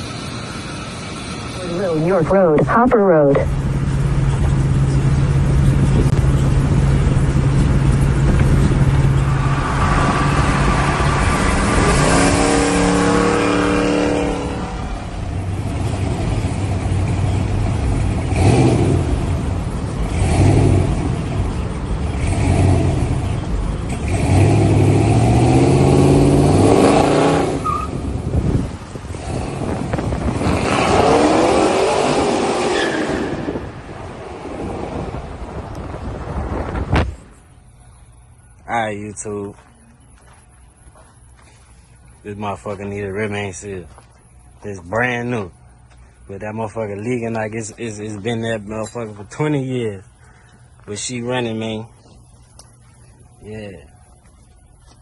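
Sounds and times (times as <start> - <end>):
car engine revving while driving: 3.8 - 37.0.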